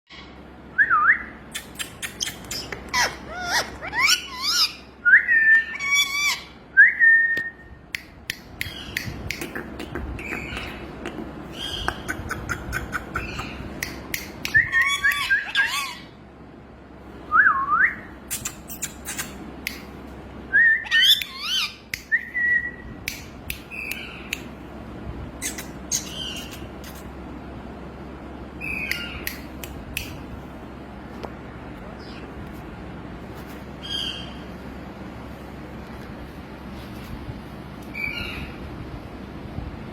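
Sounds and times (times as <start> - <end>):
parakeet squawks: 2.0 - 6.6, 14.5 - 16.2
parakeet clicks: 7.9 - 15.3, 23.0 - 24.5, 28.8 - 30.3.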